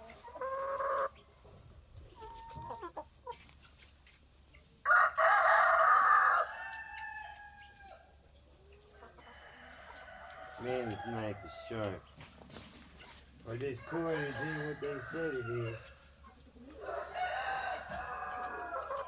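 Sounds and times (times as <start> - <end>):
chicken clucking: 0.0 - 19.0
rooster crowing: 4.9 - 8.0, 13.8 - 15.9, 16.8 - 19.0.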